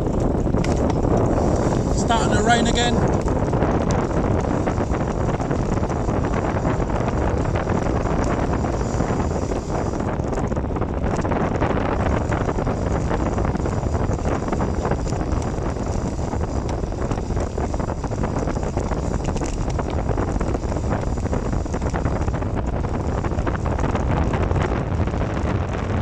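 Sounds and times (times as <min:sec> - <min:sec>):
wind buffeting microphone: 0:00.0 - 0:26.0
small crackling knocks: 0:12.2 - 0:24.0.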